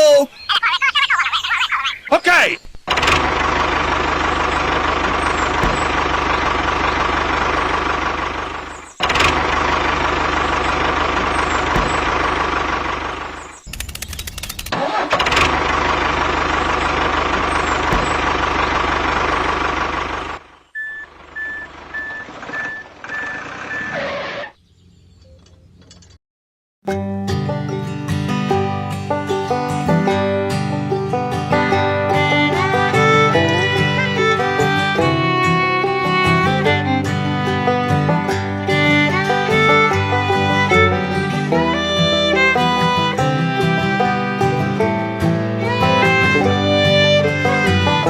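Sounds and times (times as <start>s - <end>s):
motor running steadily: 2.9s - 20.5s, 32.2s - 48.0s.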